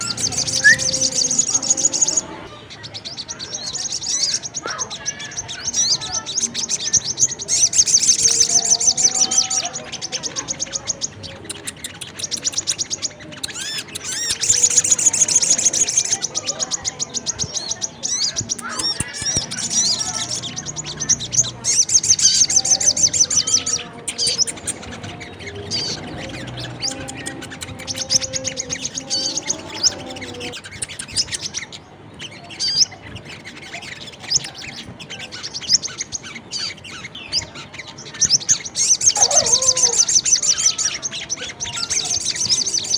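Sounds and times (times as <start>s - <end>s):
low whistled bird notes: 0.0s - 2.6s
shrill chirping bird trills: 0.0s - 42.9s.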